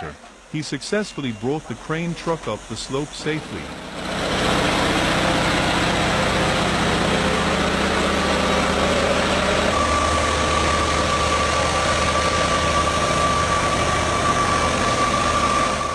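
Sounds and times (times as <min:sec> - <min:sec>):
high whine: 0:00.0 - 0:15.9
truck engine running: 0:00.0 - 0:15.9.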